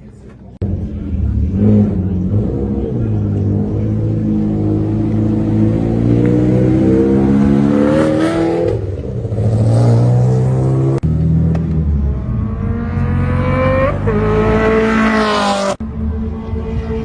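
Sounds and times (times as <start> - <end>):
race car engine accelerating: 0.7 - 17.0.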